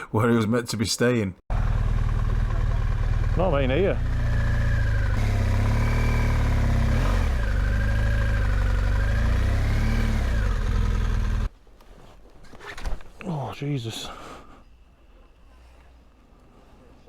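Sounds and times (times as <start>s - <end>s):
motorcycle engine revving: 1.5s - 11.5s.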